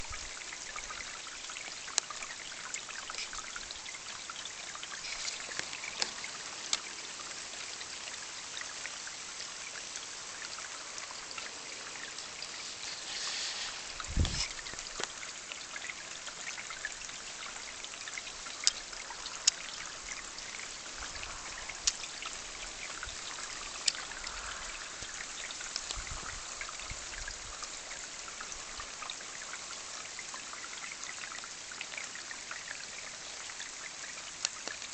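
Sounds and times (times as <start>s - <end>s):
sharp water drips: 0.0s - 34.9s
steady rain pattering: 0.0s - 34.9s
water trickling: 0.0s - 34.9s.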